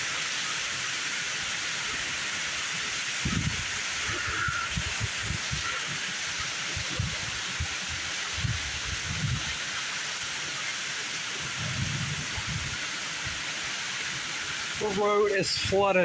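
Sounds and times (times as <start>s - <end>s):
heavy rain pouring: 0.0s - 16.0s
wind buffeting microphone: 3.2s - 6.0s, 6.6s - 9.6s, 11.4s - 13.5s.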